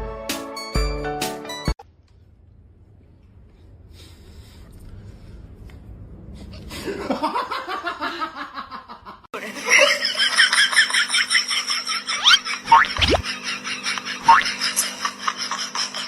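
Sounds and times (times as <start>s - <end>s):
people laughing: 6.8s - 16.0s.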